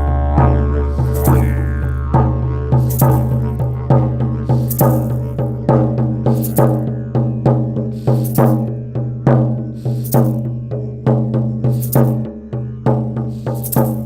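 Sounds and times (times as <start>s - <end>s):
struck ringing pitched notes: 0.0s - 9.3s
low drone: 0.0s - 14.0s.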